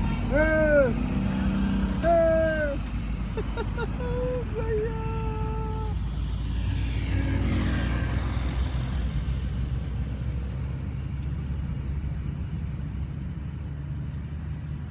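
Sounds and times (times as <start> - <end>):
motor vehicle passing: 0.0 - 11.0
steady low rumble: 0.0 - 13.8.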